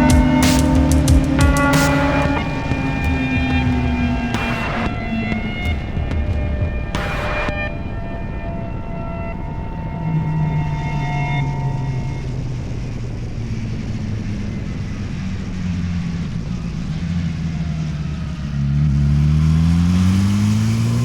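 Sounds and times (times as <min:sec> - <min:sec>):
motorcycle engine accelerating: 0:00.0 - 0:07.7, 0:12.4 - 0:21.0.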